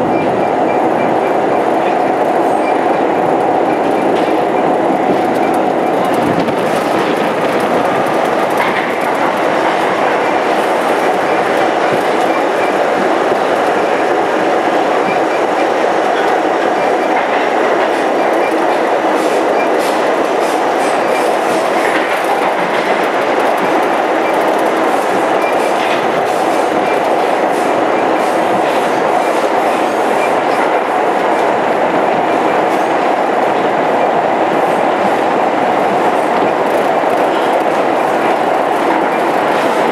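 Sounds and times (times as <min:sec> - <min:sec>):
subway train roaring on rails: 0:00.0 - 0:39.9
track clicks: 0:00.1 - 0:31.5.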